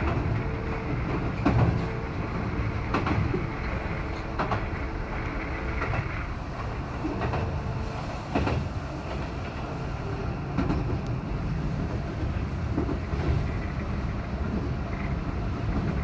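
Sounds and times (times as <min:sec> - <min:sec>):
electric train rumbling: 0:00.0 - 0:16.0.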